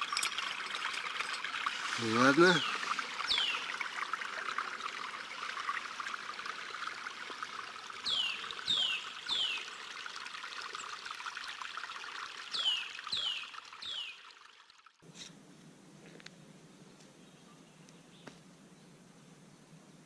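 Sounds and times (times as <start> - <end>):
crackly trickling hiss: 0.0 - 11.5.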